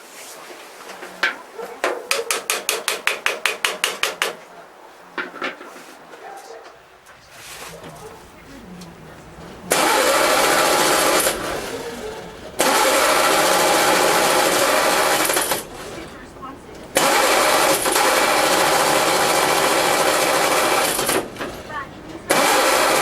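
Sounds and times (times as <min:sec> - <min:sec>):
car engine cranking on starter: 0:07.1 - 0:23.0.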